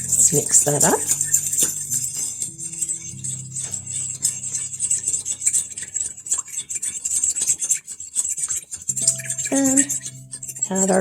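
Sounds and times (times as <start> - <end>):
background music: 0.0 - 6.3, 8.9 - 11.0.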